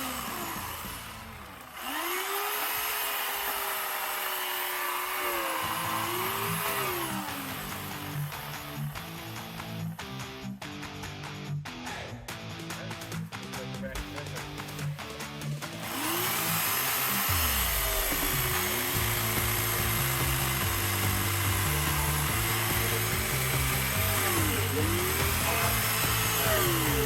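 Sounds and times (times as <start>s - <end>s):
electric chainsaw cutting wood: 0.0s - 11.2s, 14.2s - 27.0s
background music with bass: 5.4s - 27.0s.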